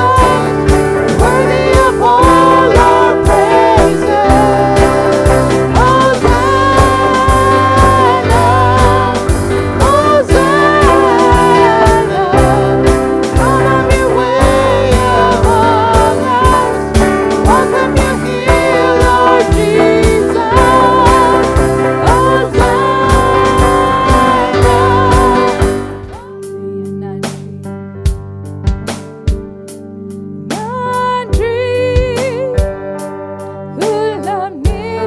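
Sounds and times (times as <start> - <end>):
steady drum beat: 0.0 - 26.3, 28.1 - 29.8
worship band playing: 0.0 - 35.0.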